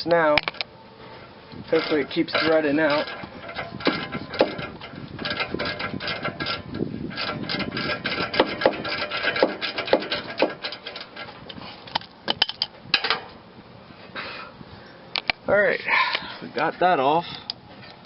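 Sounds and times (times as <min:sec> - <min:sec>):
wrench clicking and scraping: 0:01.6 - 0:13.2.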